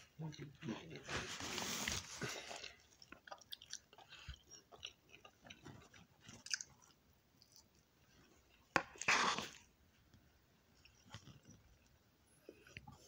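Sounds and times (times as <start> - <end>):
person chewing: 1.8 - 9.7.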